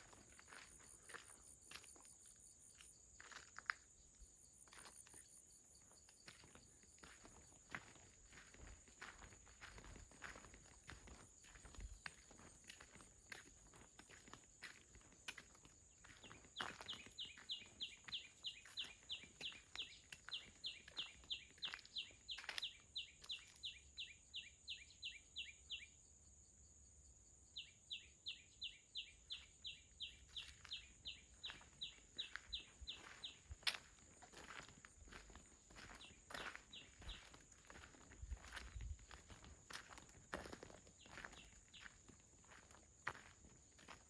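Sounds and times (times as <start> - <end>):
footsteps crunching: 0.0 - 2.2, 6.2 - 23.6, 29.7 - 44.0.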